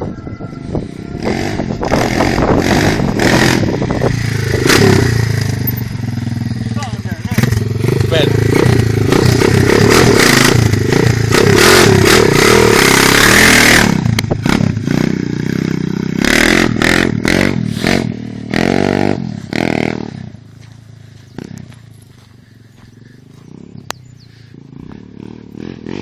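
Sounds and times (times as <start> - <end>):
dirt bike engine revving: 1.0 - 26.0.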